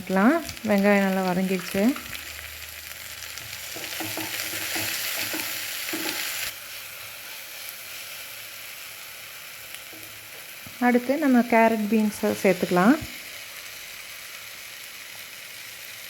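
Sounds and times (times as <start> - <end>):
vegetables sizzling in oil: 0.0 - 16.0
spoon knocking on pan: 3.5 - 6.4.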